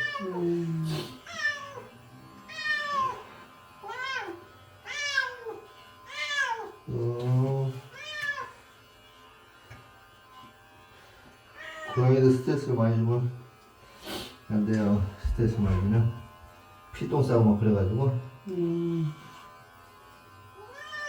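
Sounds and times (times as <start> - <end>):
cat meowing: 0.0 - 0.4, 1.3 - 1.9, 2.5 - 3.2, 3.8 - 6.8, 7.9 - 8.5, 11.6 - 12.0, 20.6 - 21.0.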